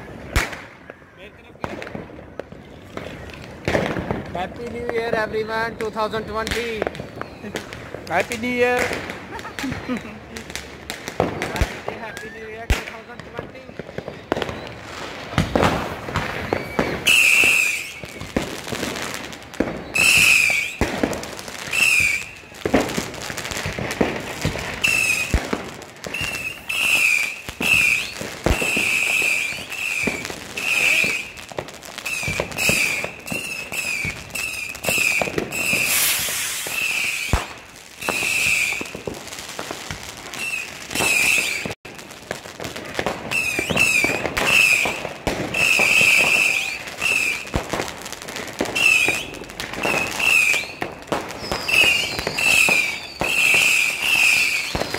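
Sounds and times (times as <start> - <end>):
fireworks bangs and crackling: 0.0 - 54.9
short high-pitched whistles: 16.4 - 18.2, 19.8 - 20.8, 21.7 - 22.5, 24.8 - 25.3, 26.1 - 31.4, 32.0 - 37.3, 40.4 - 41.6, 43.3 - 44.9, 45.5 - 47.5, 48.8 - 50.8, 51.4 - 54.9.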